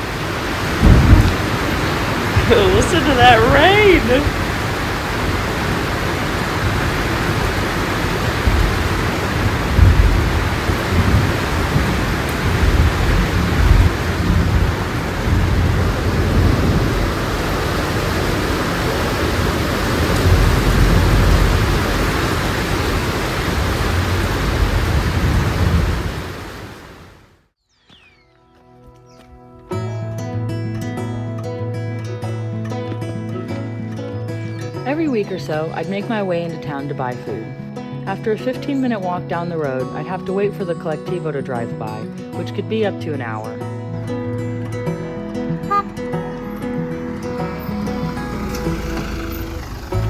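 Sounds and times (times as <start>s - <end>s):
low thunder rumbles: 0.0s - 27.0s
heavy rain: 0.0s - 27.4s, 45.7s - 50.0s.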